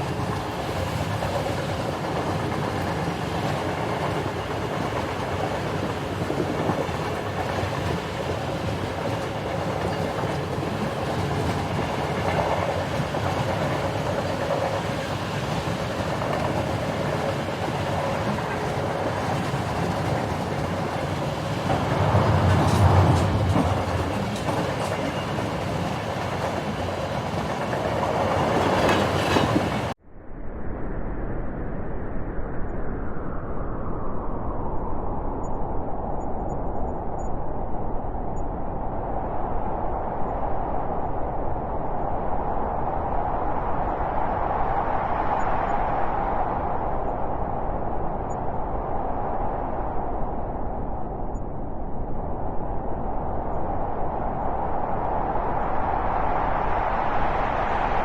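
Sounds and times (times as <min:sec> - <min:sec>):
vehicle rumbling in motion: 0:19.5 - 0:28.1.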